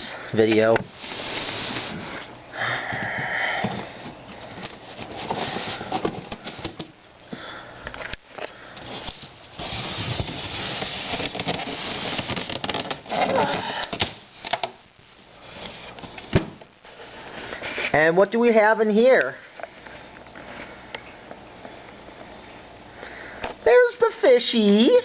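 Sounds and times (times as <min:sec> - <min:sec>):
packing material rustling: 0:04.0 - 0:06.9, 0:08.0 - 0:14.7.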